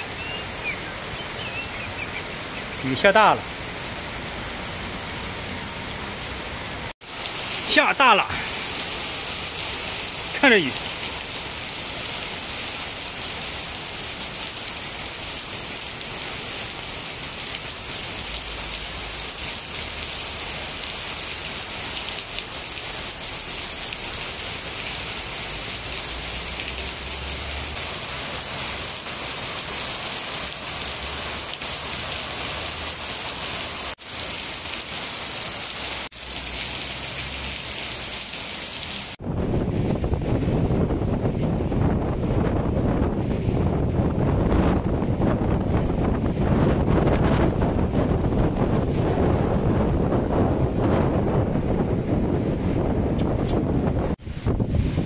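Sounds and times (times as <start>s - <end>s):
heavy rain pouring: 0.0s - 55.0s
wind buffeting microphone: 39.2s - 55.0s.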